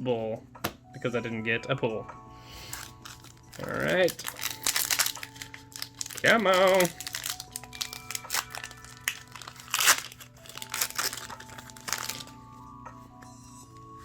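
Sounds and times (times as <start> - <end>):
foil wrapper crinkling and tearing: 2.6 - 12.4.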